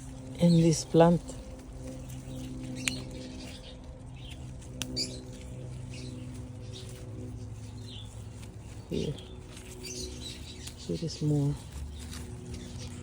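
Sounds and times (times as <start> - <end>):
steady low hum: 0.0 - 13.0
sharp snaps of picking fruit: 2.8 - 3.1, 4.3 - 5.2.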